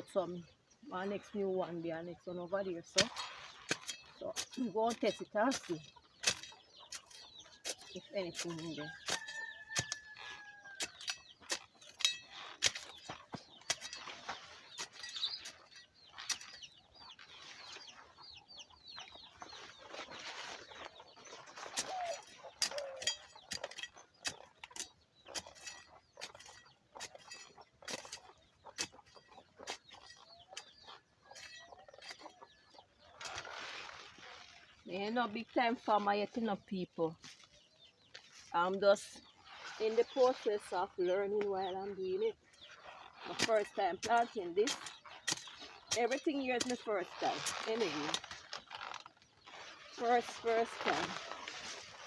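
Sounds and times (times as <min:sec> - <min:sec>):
digging in soil: 0:00.0 - 0:52.0
chickens clucking: 0:02.4 - 0:33.4.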